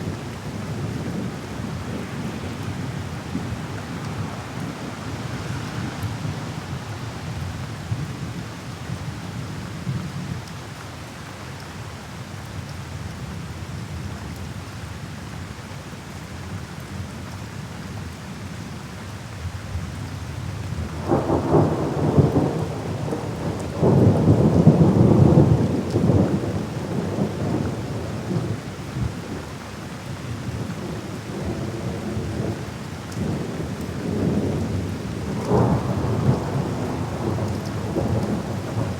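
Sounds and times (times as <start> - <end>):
steady rain: 0.0 - 38.9
thunder rumbling: 33.2 - 38.9.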